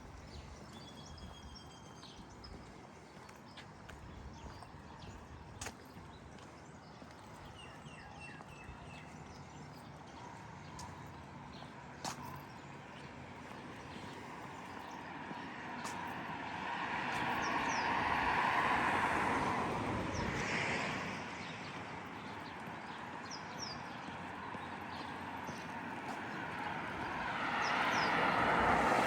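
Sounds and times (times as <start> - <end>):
street hum: 0.0 - 29.0
vehicle passing: 15.0 - 22.7, 24.2 - 29.0.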